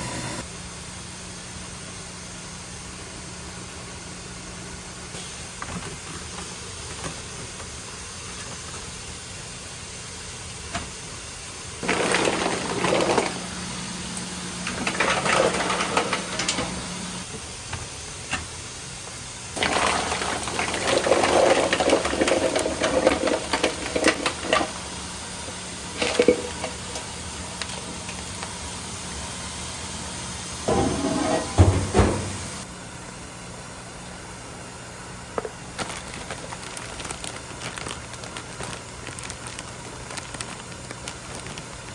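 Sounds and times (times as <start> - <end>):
kitchen background noise: 5.2 - 32.7
water pouring: 11.8 - 13.5, 19.6 - 24.8.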